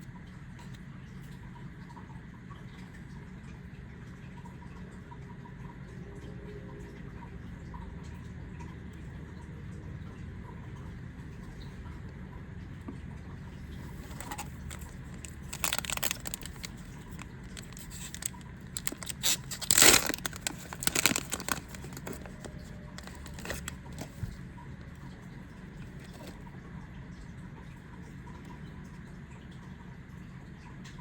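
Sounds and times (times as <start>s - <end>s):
wrapper tearing and crinkling: 13.9s - 24.2s.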